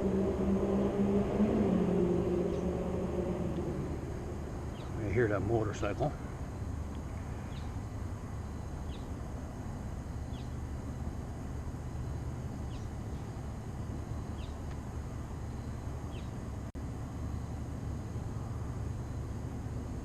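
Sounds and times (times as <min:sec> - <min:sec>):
steady low rumble: 0:00.0 - 0:17.0
bird chirping: 0:02.2 - 0:03.5, 0:04.5 - 0:05.2, 0:07.4 - 0:07.8, 0:08.8 - 0:09.2, 0:10.2 - 0:10.6, 0:12.6 - 0:13.3, 0:14.3 - 0:14.7, 0:16.1 - 0:16.4.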